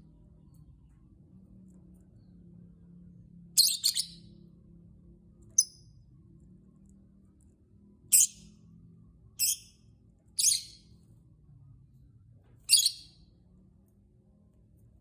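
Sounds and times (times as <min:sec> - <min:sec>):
lovebird high-pitched calls: 0:03.6 - 0:04.2, 0:08.1 - 0:08.4, 0:09.4 - 0:09.8, 0:10.4 - 0:10.9, 0:12.7 - 0:13.2.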